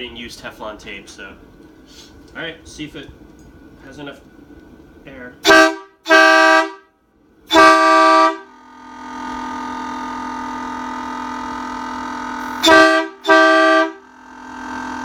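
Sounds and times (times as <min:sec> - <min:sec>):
air horn blasts: 0:05.4 - 0:15.0
compressor motor humming: 0:07.5 - 0:15.0.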